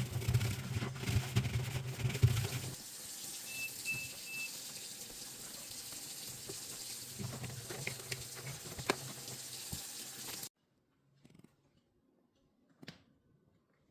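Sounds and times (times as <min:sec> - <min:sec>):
water running from a tap: 0:02.3 - 0:10.5.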